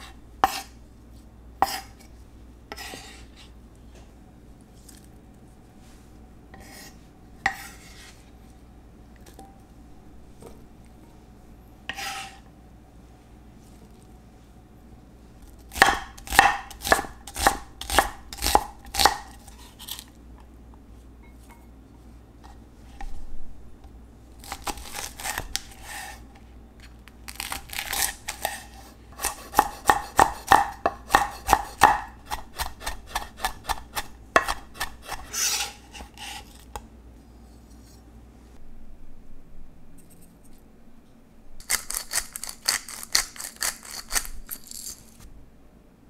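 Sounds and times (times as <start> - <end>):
knife chopping on cutting board: 0.4 - 0.7, 1.6 - 1.9, 15.7 - 19.4, 27.9 - 36.4.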